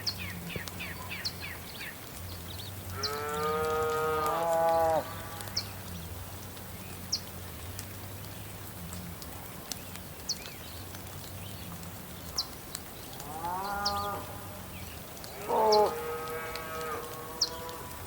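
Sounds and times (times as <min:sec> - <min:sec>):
cow mooing: 0:15.4 - 0:17.9.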